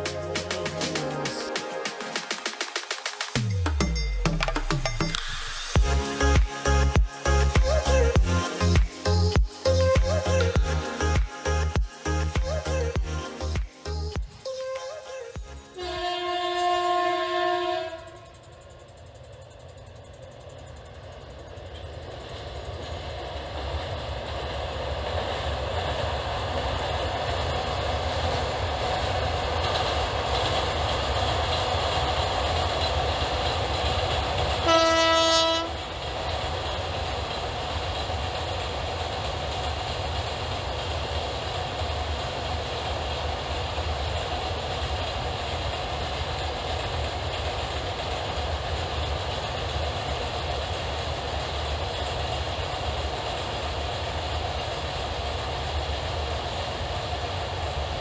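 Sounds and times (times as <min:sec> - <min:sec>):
train rumbling over bridge: 0:00.0 - 0:14.5, 0:15.3 - 0:58.0
train horn blast: 0:15.7 - 0:18.3, 0:34.6 - 0:35.8.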